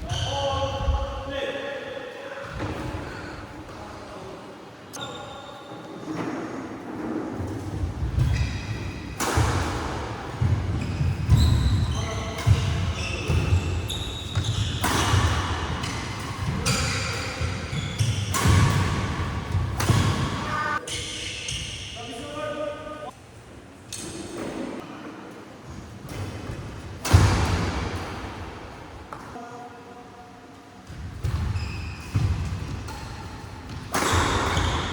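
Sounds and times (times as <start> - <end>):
shoe squeaks: 4.9 - 5.9, 8.2 - 9.1, 10.8 - 15.2, 16.6 - 18.4, 31.4 - 32.2, 34.0 - 34.9
racket hitting shuttlecock: 9.1 - 11.8, 12.4 - 20.6, 32.1 - 34.9.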